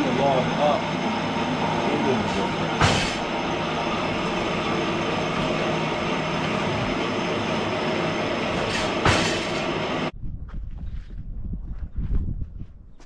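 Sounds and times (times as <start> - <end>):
sawmill machinery whine and rumble: 0.0 - 10.1
sharp bang: 2.2 - 5.6, 8.5 - 9.8.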